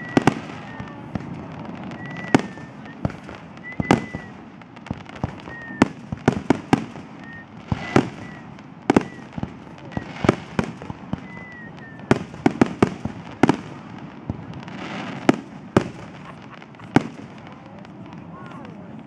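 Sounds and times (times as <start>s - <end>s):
high firework whistle: 0.0s - 13.6s
continuous rumble: 0.0s - 19.0s
firework shells bursting: 2.0s - 13.7s.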